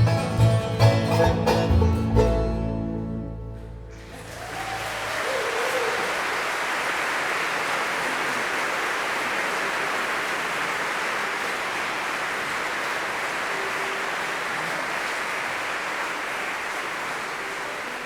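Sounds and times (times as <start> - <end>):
audience applauding: 3.9 - 18.0.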